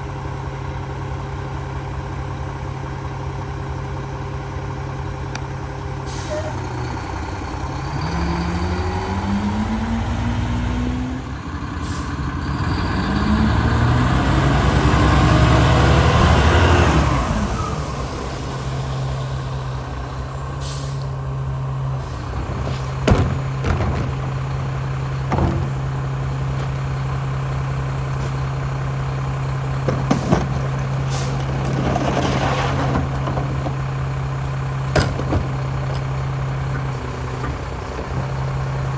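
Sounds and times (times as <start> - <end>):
diesel truck engine revving: 0.0 - 38.9
air brake hisses: 6.1 - 6.6, 11.8 - 12.2, 20.6 - 21.2, 31.1 - 31.4
sharp clunks: 22.4 - 27.0, 29.8 - 33.8, 34.9 - 38.5.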